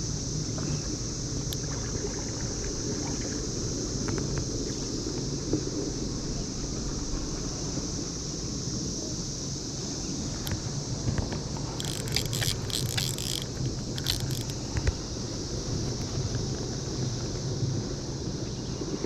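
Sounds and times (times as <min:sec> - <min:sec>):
cicada chorus drone: 0:00.0 - 0:18.8
water noise: 0:11.8 - 0:14.7.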